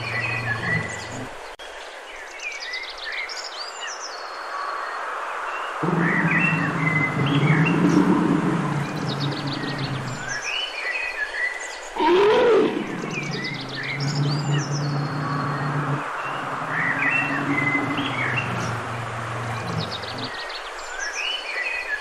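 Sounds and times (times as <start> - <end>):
bear growling: 0.0 - 1.4, 5.8 - 10.4, 12.0 - 20.4
small birds chirping: 0.0 - 4.4, 5.6 - 10.8, 11.4 - 21.9.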